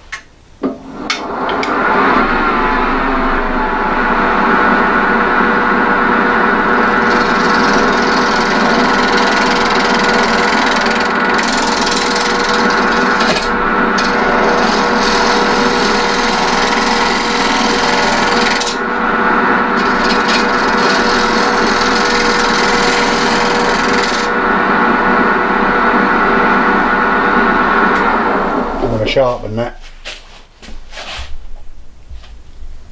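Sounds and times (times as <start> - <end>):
wood lathe humming: 4.2 - 28.9
turning tool cutting wood: 6.8 - 24.4.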